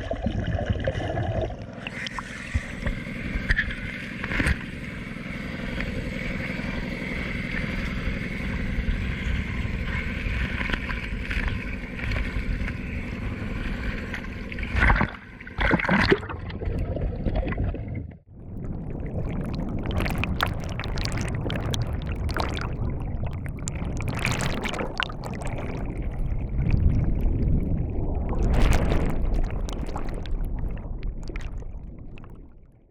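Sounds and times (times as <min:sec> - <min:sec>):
water noise: 0:00.0 - 0:32.9
rough noisy rumble: 0:18.3 - 0:32.6.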